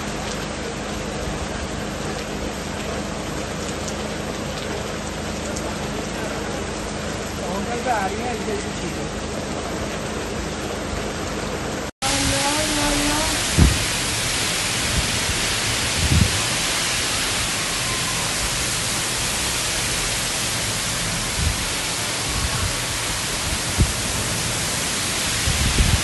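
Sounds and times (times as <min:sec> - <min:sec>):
heavy rain and wind: 0:00.0 - 0:26.0
low thumps: 0:13.4 - 0:14.3.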